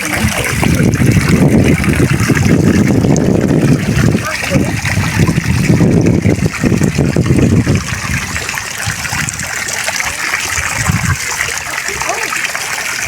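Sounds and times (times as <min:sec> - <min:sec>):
heavy low rumble: 0:00.0 - 0:09.5
fountain water splashing: 0:00.0 - 0:13.0.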